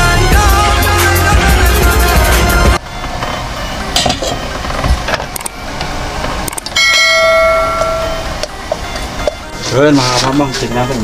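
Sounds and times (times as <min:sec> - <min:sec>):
loud bell chime: 0:06.8 - 0:09.2.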